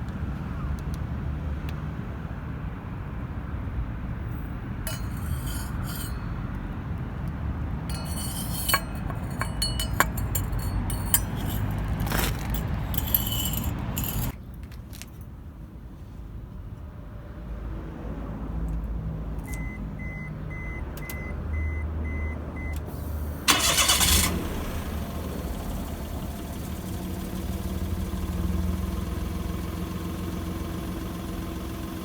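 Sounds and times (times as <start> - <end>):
metal parts clinking: 4.9 - 6.3, 7.9 - 15.1
car engine idling: 23.4 - 32.0.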